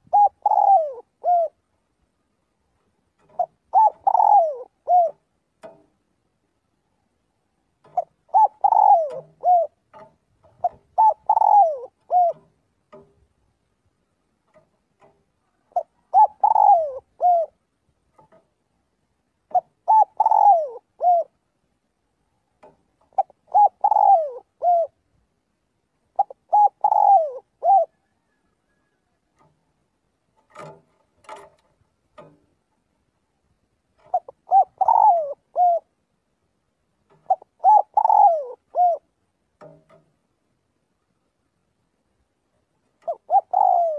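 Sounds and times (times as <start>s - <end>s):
dove cooing: 0.0s - 1.7s, 2.8s - 5.8s, 7.8s - 13.1s, 14.5s - 17.6s, 19.5s - 21.4s, 22.6s - 25.0s, 26.1s - 29.6s, 34.0s - 36.0s, 37.1s - 40.0s, 42.9s - 43.9s
faint clicks: 5.1s - 6.0s, 14.3s - 15.9s, 28.5s - 32.9s.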